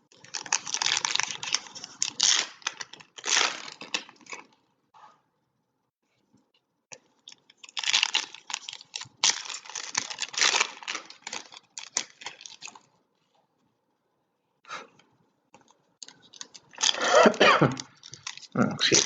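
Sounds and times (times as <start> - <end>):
plastic wrappers tearing and crinkling: 0.1 - 4.6, 7.2 - 12.9, 16.0 - 19.0.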